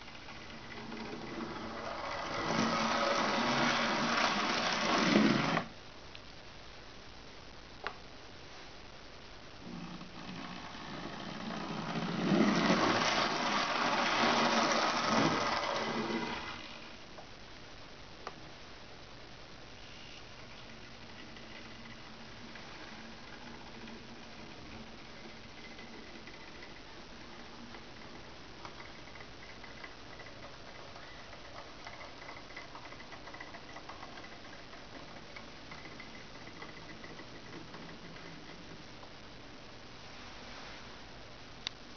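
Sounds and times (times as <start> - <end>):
model train whirring along track: 0.0 - 5.7, 10.4 - 16.9
wheels ticking and clicking: 12.0 - 16.6, 27.7 - 38.8.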